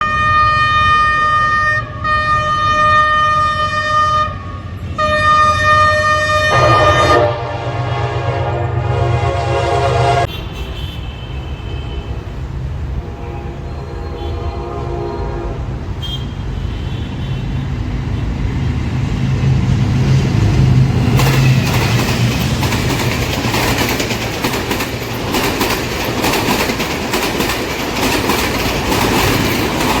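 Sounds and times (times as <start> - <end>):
locomotive horn blasts: 0.0 - 12.3, 13.0 - 17.4
rush of passing train: 0.0 - 30.0
locomotive engine rumble: 6.5 - 10.3
train wheels clacking over rail joints: 20.7 - 30.0.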